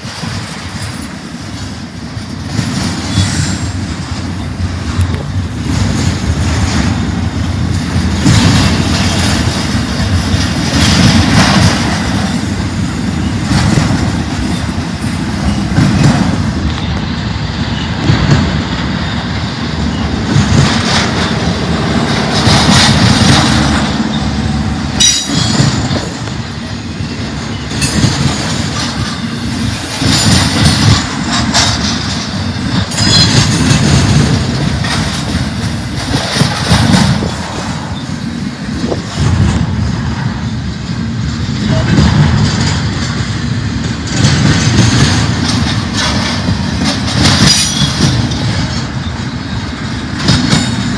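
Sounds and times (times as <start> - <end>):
freight train rumbling past: 0.0 - 50.9
wheels clacking over rails: 0.0 - 50.9
high wheel squeals: 16.7 - 33.6.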